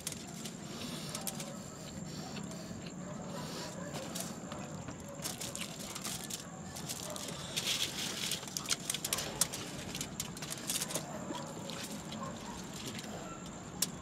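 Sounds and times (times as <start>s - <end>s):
packaging crackling and clicking: 0.0s - 1.5s, 5.0s - 11.2s.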